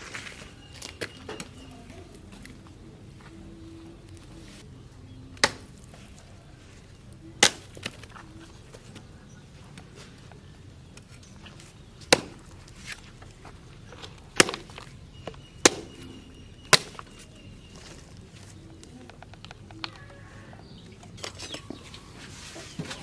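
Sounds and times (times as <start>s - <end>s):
knife chopping into wood: 5.4s - 5.7s, 12.1s - 12.4s.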